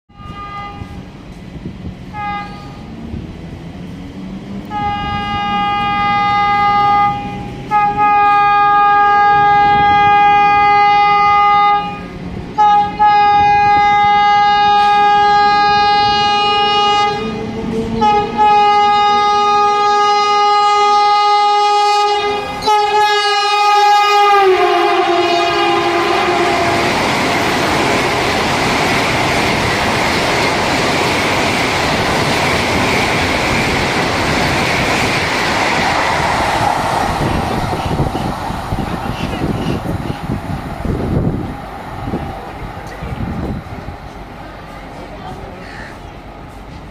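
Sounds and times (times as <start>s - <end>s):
train horn blasts: 0.1s - 1.1s, 2.1s - 2.9s, 4.7s - 27.2s
rush of passing train: 0.1s - 46.9s.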